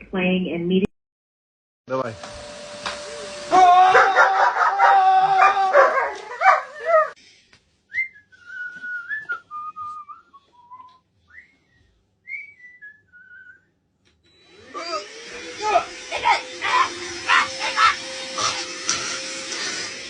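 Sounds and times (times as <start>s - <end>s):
dog howling: 3.5s - 7.2s, 14.7s - 18.7s
whistled tune: 7.9s - 13.8s.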